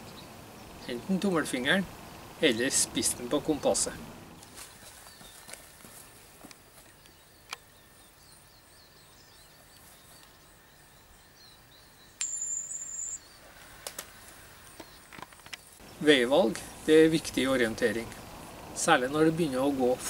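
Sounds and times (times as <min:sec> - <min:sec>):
birds chirping: 0:00.0 - 0:20.0
high-pitched beep: 0:12.2 - 0:13.2.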